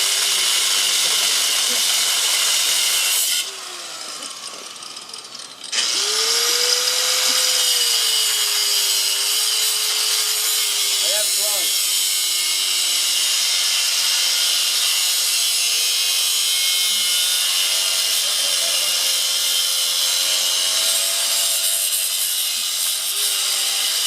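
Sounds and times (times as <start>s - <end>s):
angle grinder cutting metal: 0.0s - 24.0s.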